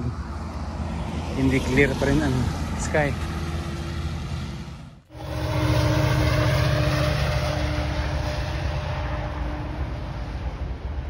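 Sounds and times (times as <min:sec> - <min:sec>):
train rumbling over steel bridge: 0:00.8 - 0:11.0
low droning tone: 0:03.2 - 0:11.0.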